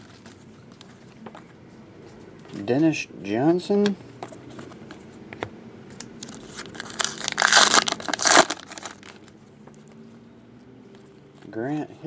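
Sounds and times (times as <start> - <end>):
card pack wrapper crinkling and tearing: 6.2 - 9.3.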